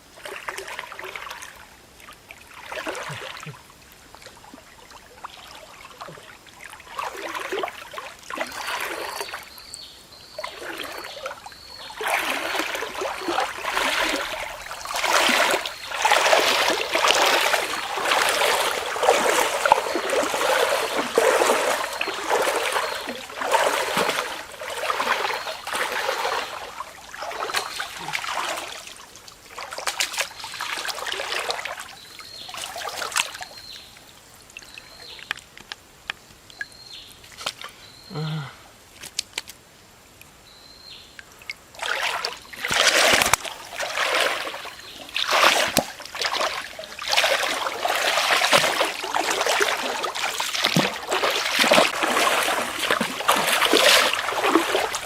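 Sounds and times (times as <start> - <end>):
water splashing and trickling: 0.0 - 55.0.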